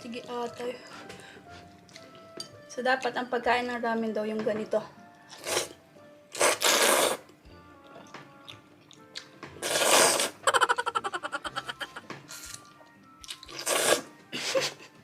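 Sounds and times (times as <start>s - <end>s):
noodles being slurped: 5.3s - 7.2s, 9.6s - 10.4s, 13.4s - 14.1s.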